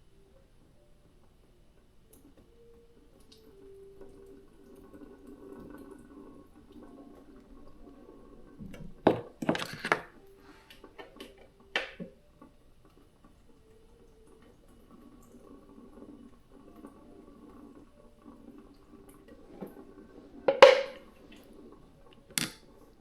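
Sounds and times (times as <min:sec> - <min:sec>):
faint background hum: 0:00.0 - 0:23.0
cookware and utensils clattering: 0:08.6 - 0:12.1, 0:19.3 - 0:21.6.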